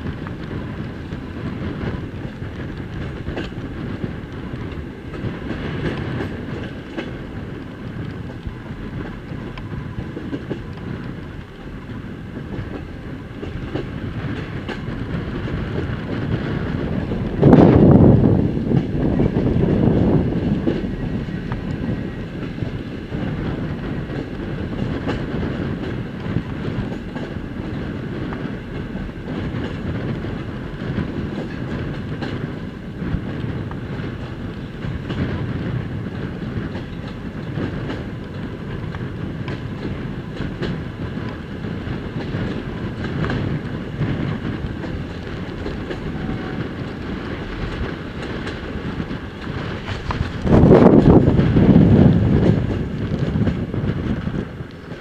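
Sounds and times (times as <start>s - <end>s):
rail joint clicks: 0.0s - 55.0s
train wheels rumbling on rails: 0.0s - 55.0s.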